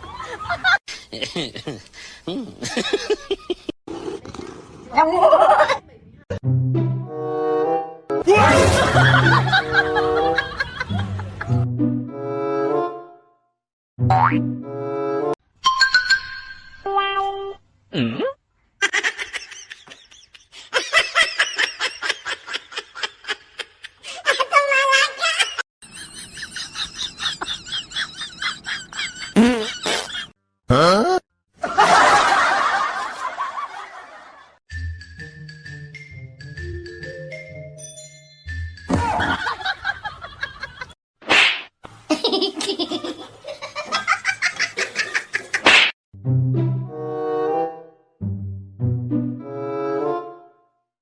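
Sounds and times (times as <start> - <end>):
person laughing hard: 0.0 - 3.7, 18.8 - 31.1, 38.9 - 41.0.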